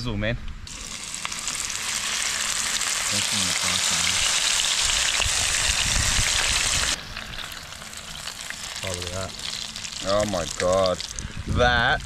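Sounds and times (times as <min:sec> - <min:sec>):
fish frying in oil: 0:00.7 - 0:11.4.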